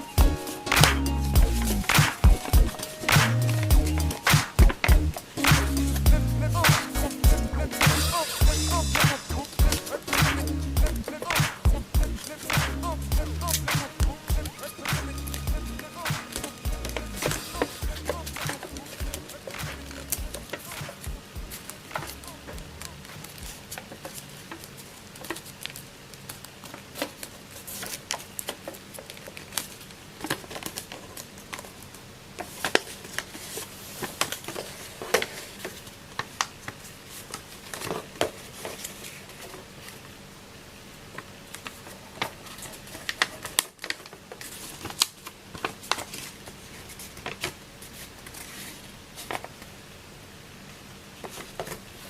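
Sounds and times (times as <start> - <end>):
faint steady hum: 0.0 - 52.0
paper crinkling and folding: 12.2 - 40.2, 40.9 - 49.8, 51.1 - 52.0.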